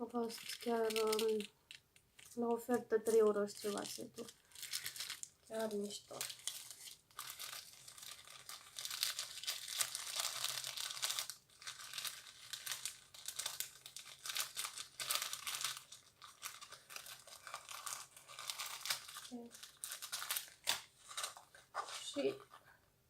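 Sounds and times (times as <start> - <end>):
plastic packaging crinkling: 0.1 - 22.6.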